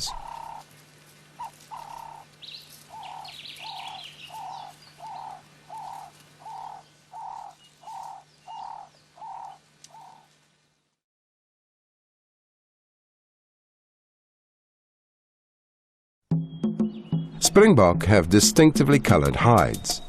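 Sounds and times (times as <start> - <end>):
high bird chirps: 0.0 - 0.7, 1.4 - 10.3, 16.4 - 17.4
bird cooing: 0.0 - 0.8, 1.4 - 10.4.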